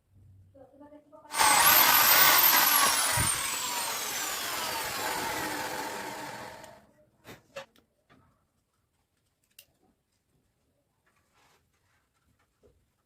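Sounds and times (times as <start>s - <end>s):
small electric motor whirring: 1.3s - 6.8s.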